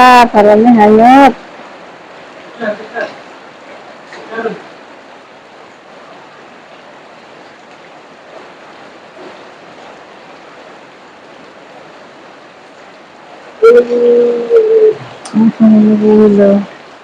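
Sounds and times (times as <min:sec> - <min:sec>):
rain and running rainwater: 0:00.0 - 0:17.0
child wailing call: 0:13.6 - 0:15.0.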